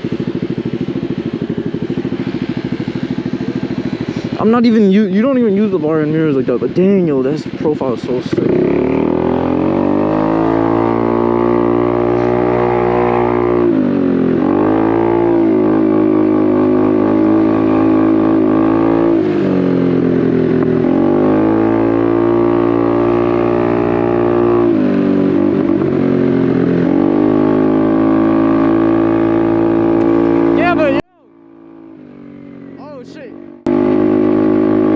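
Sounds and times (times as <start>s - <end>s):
small motorcycle engine revving: 0.0s - 34.9s.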